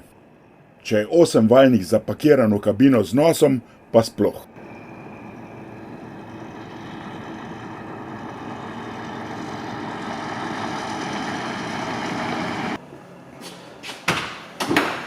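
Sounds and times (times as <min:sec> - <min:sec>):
diesel truck engine running: 0:04.5 - 0:12.8.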